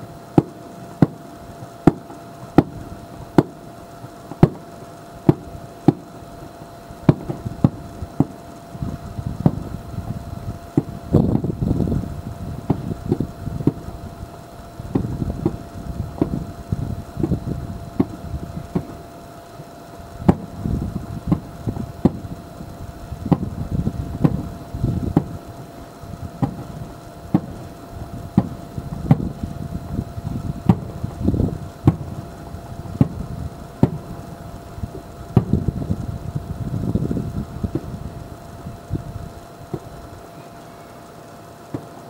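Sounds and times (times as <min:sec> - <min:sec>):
continuous low rumble: 0:00.0 - 0:42.0
distant fireworks bangs and booms: 0:00.3 - 0:09.8, 0:10.6 - 0:11.7, 0:12.5 - 0:14.3, 0:14.9 - 0:19.1, 0:20.2 - 0:36.4.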